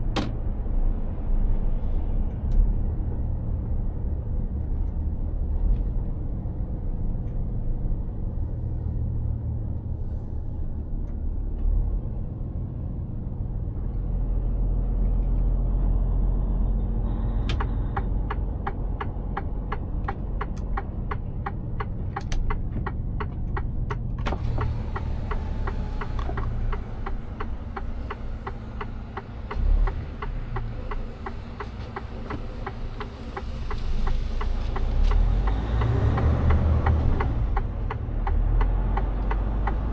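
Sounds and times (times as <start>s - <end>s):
truck rumbling on road: 0.0s - 39.9s
regular fast ticking: 24.9s - 39.9s.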